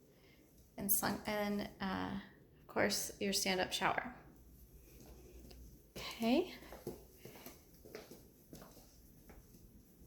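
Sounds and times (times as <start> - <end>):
faint soft footsteps: 4.3 - 10.0.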